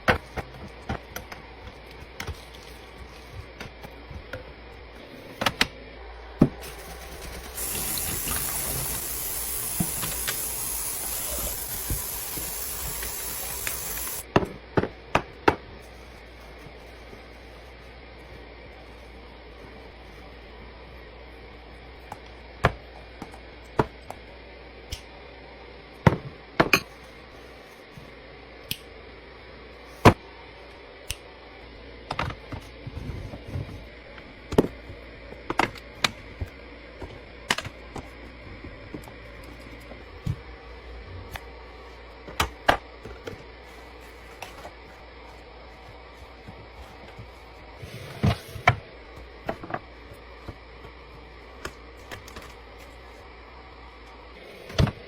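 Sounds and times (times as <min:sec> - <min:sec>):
refrigerator hum: 0:00.0 - 0:55.0.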